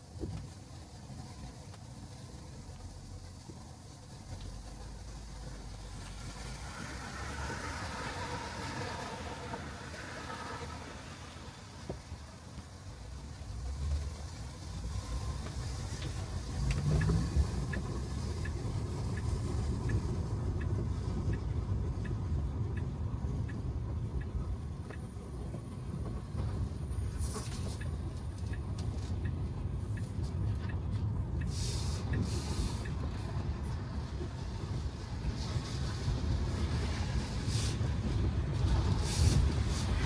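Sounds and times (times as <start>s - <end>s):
tyre noise on wet road: 0.0s - 40.0s
faint ticks: 15.3s - 26.4s, 27.1s - 34.2s.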